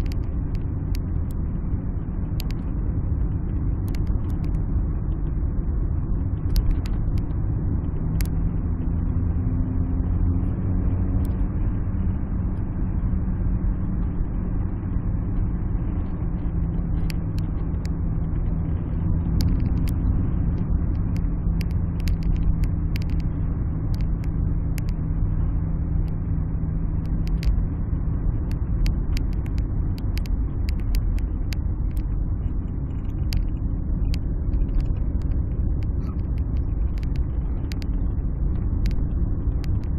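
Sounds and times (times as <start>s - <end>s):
car engine and road rumble: 0.0s - 39.9s
engine hum: 0.0s - 39.9s
light clicks: 2.4s - 2.6s, 6.5s - 7.3s, 19.4s - 20.0s, 20.9s - 23.3s, 23.9s - 25.0s, 27.0s - 27.6s, 28.5s - 32.1s, 32.9s - 38.0s.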